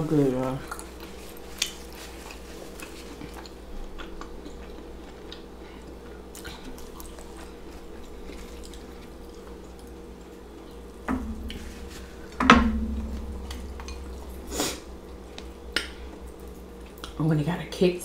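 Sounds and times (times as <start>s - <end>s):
steady low hum: 0.0s - 18.0s
chewing crunchy fried food: 0.5s - 11.1s.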